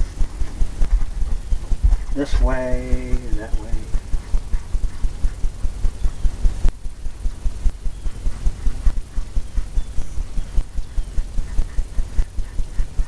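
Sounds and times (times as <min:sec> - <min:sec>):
paintbrush dabbing on canvas: 0:00.0 - 0:05.7.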